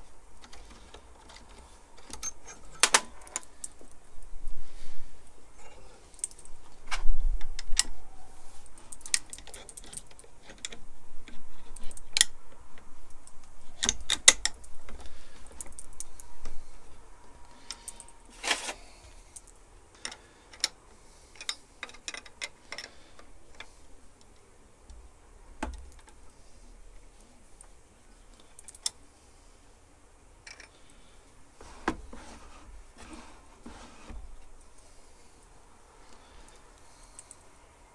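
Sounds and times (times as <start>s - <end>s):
metal parts rattling: 0.4s - 3.8s
metallic clicks and clinks: 0.4s - 3.8s.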